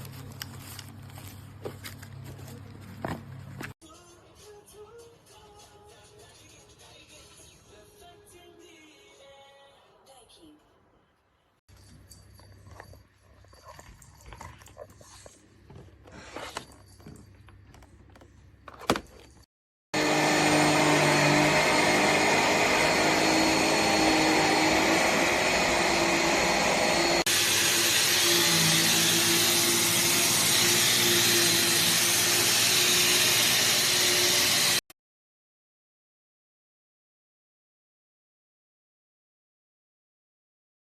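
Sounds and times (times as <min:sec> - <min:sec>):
handling clicks and knocks: 0:15.6 - 0:19.4
vacuum cleaner running: 0:19.9 - 0:34.8.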